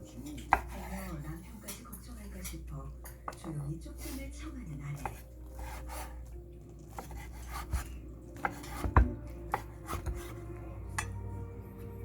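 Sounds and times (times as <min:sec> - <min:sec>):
knife chopping on cutting board: 0:00.3 - 0:01.2, 0:05.0 - 0:06.2, 0:06.9 - 0:10.4.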